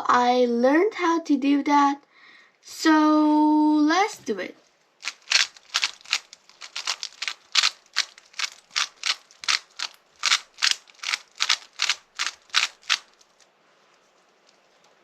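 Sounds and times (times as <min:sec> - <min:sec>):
puzzle cube plastic clicks: 0:05.0 - 0:13.4.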